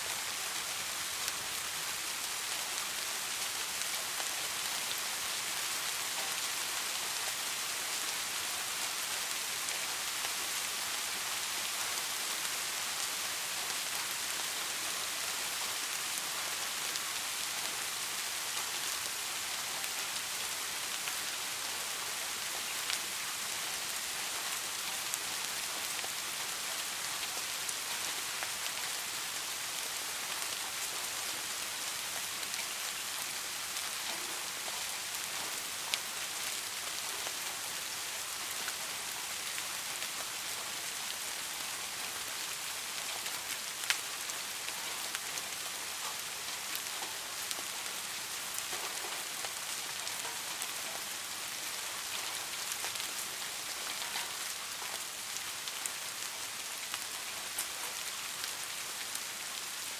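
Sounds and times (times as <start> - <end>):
steady rain on a surface: 0.0 - 59.9
rain drop ticking: 48.5 - 55.0.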